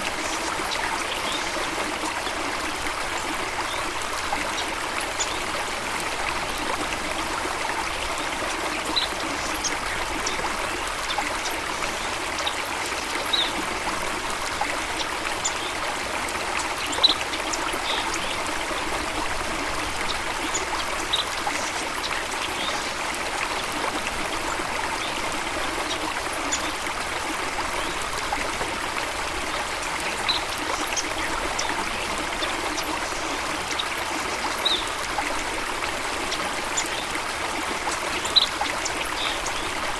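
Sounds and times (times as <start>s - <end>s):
stream flowing water: 0.0s - 39.9s.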